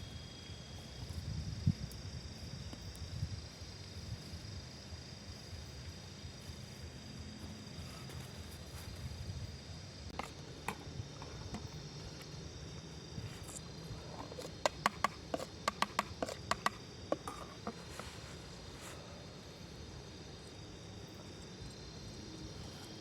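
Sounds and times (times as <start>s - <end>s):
high-pitched insect chirring: 11.1s - 17.4s.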